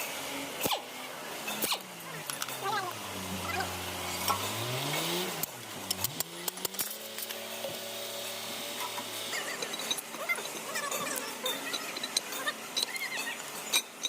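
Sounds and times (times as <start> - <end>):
engine running: 0.0 - 14.0
metallic clinks: 9.4 - 14.0.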